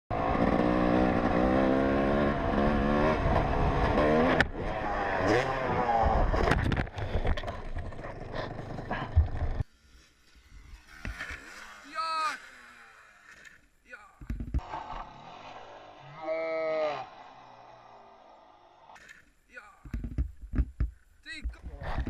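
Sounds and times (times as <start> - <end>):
dirt bike engine revving: 0.1 - 6.6, 7.8 - 13.7.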